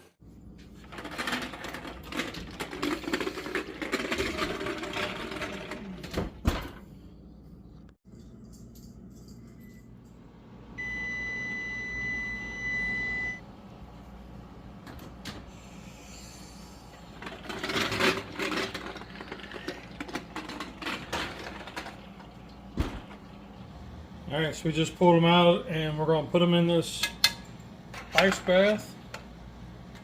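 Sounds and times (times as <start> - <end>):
oven timer beep: 10.8 - 13.4.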